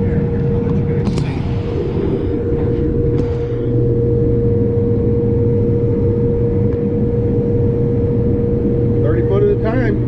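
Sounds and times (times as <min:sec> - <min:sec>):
combine harvester drone: 0:00.0 - 0:10.0
constant whining hum: 0:00.0 - 0:10.0.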